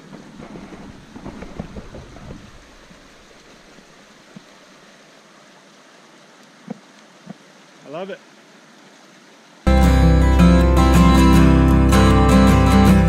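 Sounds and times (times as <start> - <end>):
faint hiss: 0.0 - 9.7.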